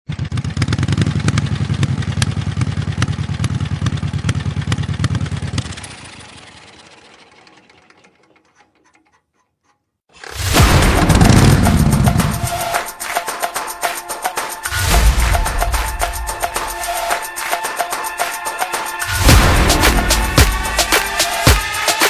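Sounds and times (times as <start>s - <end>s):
motorcycle engine running: 0.1s - 8.0s, 10.6s - 12.7s, 19.0s - 21.8s.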